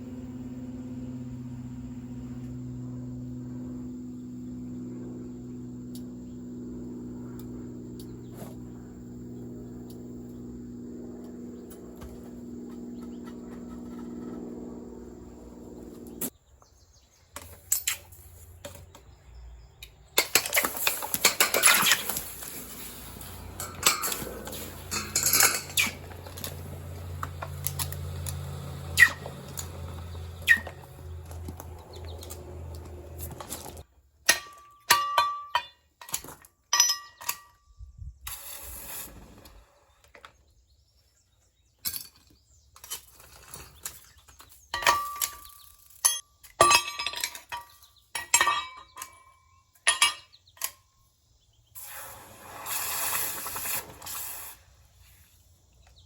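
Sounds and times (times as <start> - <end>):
steady low hum: 0.0 - 16.3, 22.3 - 33.8
metal pieces clinking together: 23.6 - 26.6, 44.8 - 50.8.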